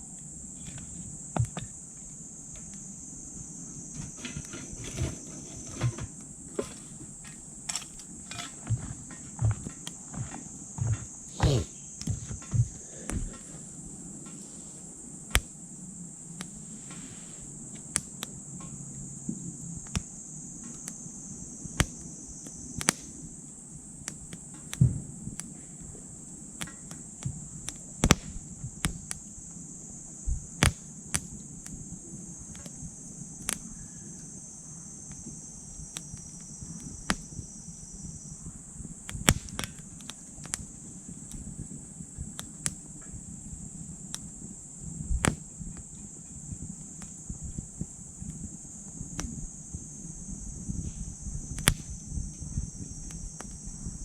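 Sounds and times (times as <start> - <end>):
high-pitched insect chorus: 0.0 - 54.0
wood fire crackling: 0.1 - 54.0
knocks in wood stove: 3.9 - 7.4.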